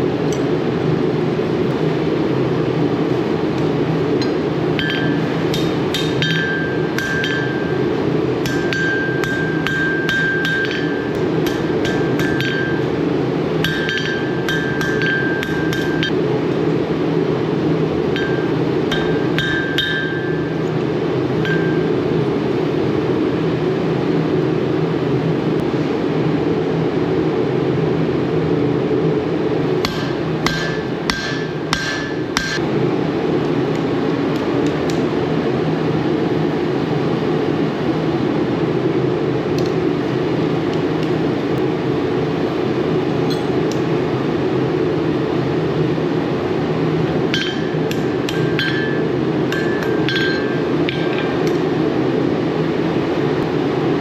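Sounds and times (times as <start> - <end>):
hammer striking metal: 4.2 - 13.0, 13.6 - 16.2, 18.1 - 20.7, 21.4 - 22.0, 29.8 - 32.6, 47.3 - 51.6.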